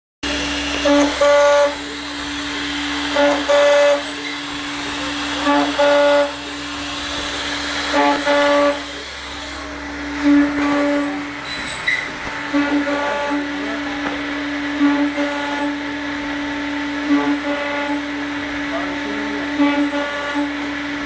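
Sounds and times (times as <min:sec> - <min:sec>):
machining centre humming: 0:00.2 - 0:21.0
pitched machine whine: 0:00.2 - 0:21.0.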